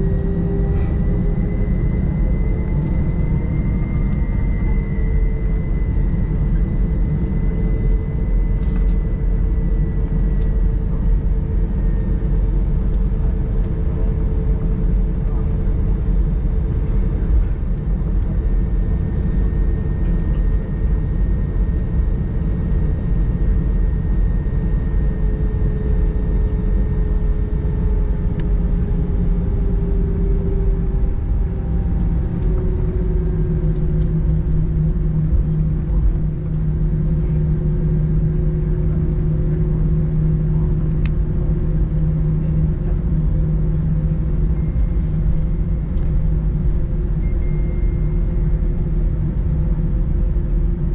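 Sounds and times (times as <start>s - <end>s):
airplane cabin rumble: 0.0s - 50.9s
deep hum: 25.5s - 50.9s.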